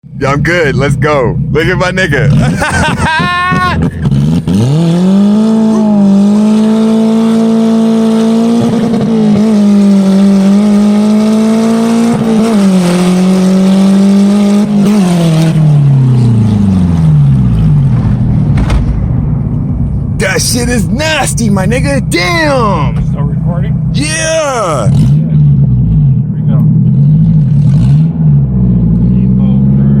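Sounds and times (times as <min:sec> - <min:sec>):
car engine revving under acceleration: 0:00.2 - 0:30.0.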